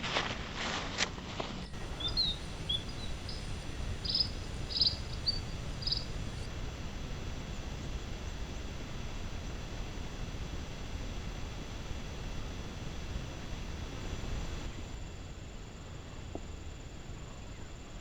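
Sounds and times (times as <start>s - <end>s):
wind rumble on microphone: 0.0s - 14.7s.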